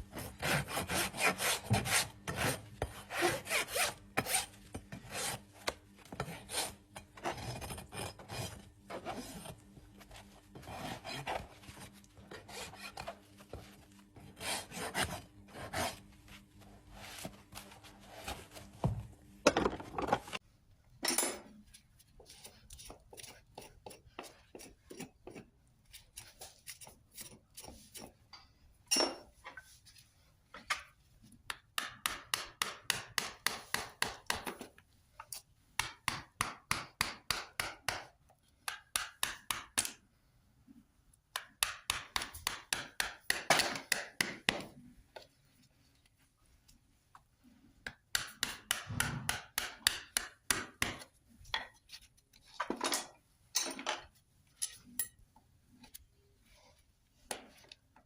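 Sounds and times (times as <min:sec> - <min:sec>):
rasp filing a hoof: 0:00.1 - 0:05.5, 0:06.1 - 0:09.6, 0:10.5 - 0:11.6, 0:12.2 - 0:13.2, 0:14.2 - 0:16.1, 0:22.2 - 0:28.2.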